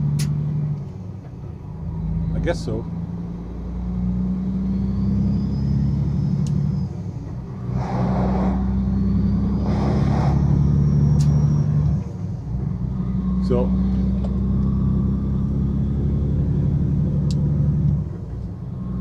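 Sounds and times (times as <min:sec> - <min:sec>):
truck engine droning: 0:00.0 - 0:19.0
short rushing noises: 0:07.6 - 0:11.7.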